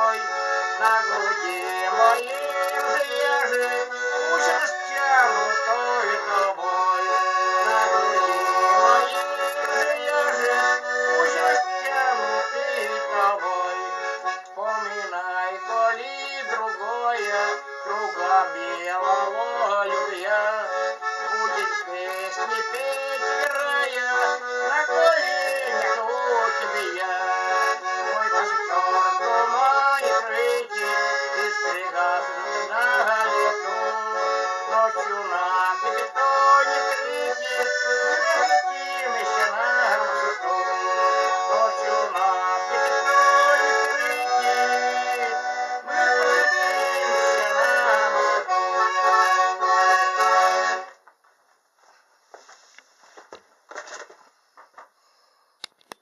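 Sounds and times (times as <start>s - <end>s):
accordion melody: 0.0s - 51.1s.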